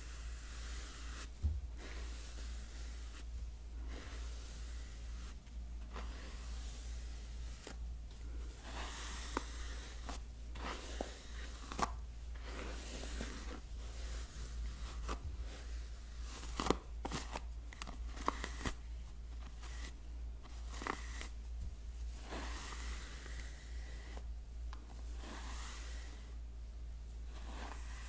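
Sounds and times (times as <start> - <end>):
steady low hum: 0.0 - 28.0
hairbrush bristles swishing: 0.1 - 7.8, 8.6 - 16.6, 25.0 - 26.3.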